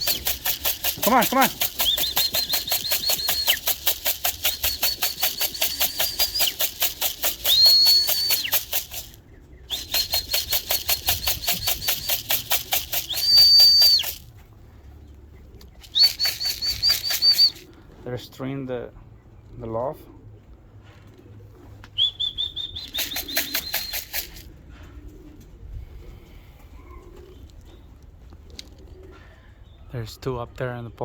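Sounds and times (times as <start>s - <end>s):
fast even rattle: 0.0s - 14.3s, 15.8s - 17.7s, 22.8s - 24.5s
high warbling whistle blasts: 7.4s - 8.6s.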